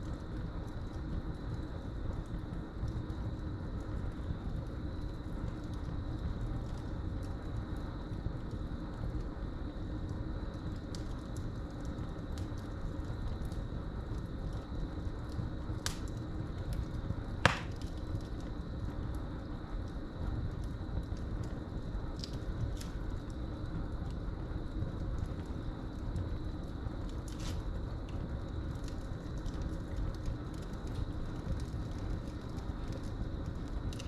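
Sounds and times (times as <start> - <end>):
wood fire crackling: 0.0 - 34.0
fire popping sharply: 17.4 - 17.9.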